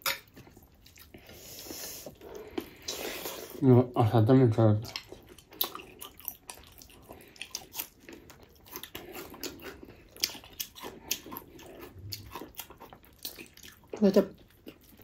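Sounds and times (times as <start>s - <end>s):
biting and chewing: 4.8s - 15.0s.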